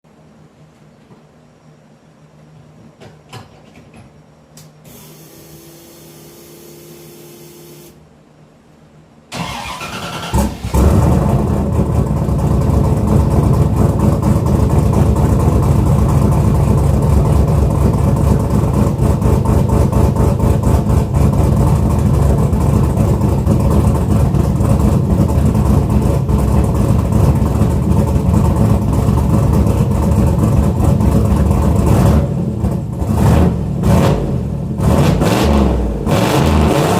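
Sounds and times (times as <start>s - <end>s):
faint whine: 4.1s - 9.8s
starter motor cranking: 9.3s - 10.8s
car engine idling: 9.3s - 33.8s.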